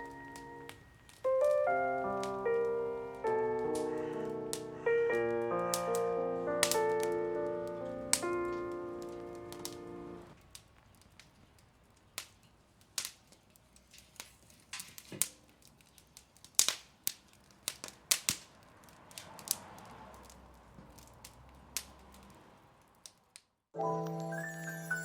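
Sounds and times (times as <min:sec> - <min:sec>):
wood fire crackling: 0:00.0 - 0:25.0
rush of flame: 0:17.5 - 0:23.1.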